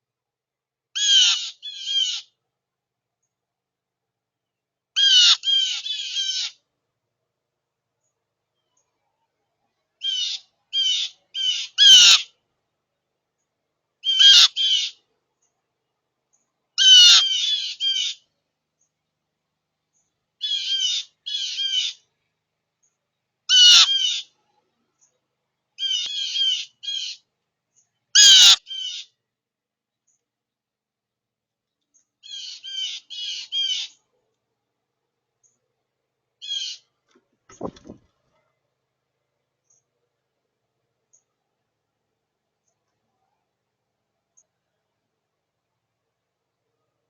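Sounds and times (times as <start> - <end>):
birds calling: 5.0 - 6.6, 10.0 - 12.3, 14.0 - 15.0, 16.8 - 18.3, 19.9 - 22.1, 23.5 - 24.4, 25.8 - 27.2, 28.2 - 29.2, 32.2 - 34.0, 36.4 - 36.9.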